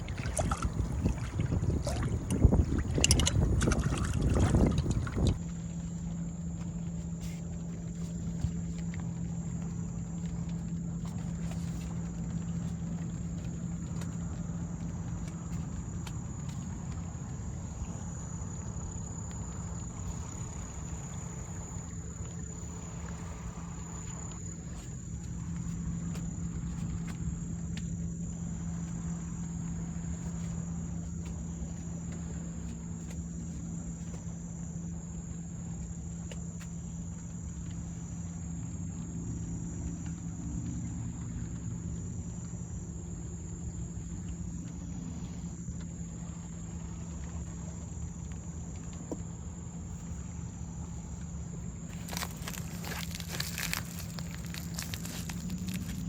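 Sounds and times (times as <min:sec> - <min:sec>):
insects trilling: 0:00.0 - 0:56.0
steady low hum: 0:00.0 - 0:56.0.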